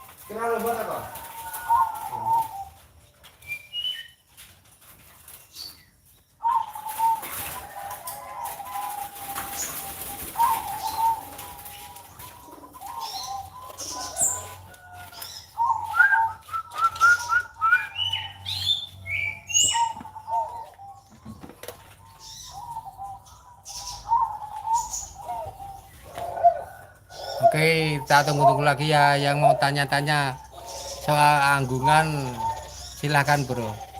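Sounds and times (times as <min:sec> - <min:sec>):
dove cooing: 0:00.0 - 0:03.0, 0:06.4 - 0:33.9
high bird chirps: 0:10.4 - 0:26.0.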